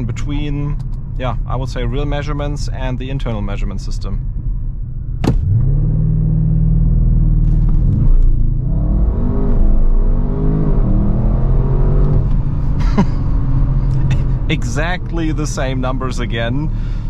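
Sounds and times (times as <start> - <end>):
car engine revving and upshifting: 5.4 - 16.4.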